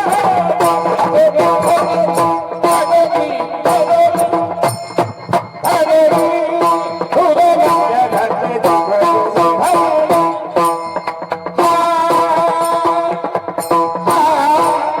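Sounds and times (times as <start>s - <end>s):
percussion and cymbal strikes: 0.0s - 15.0s.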